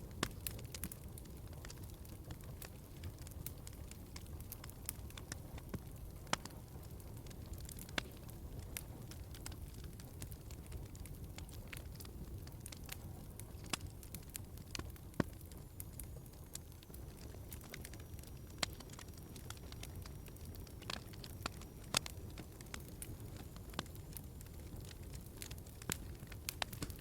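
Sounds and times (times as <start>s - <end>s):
wood fire crackling: 0.0s - 27.0s
sharp fire pops: 18.6s - 27.0s.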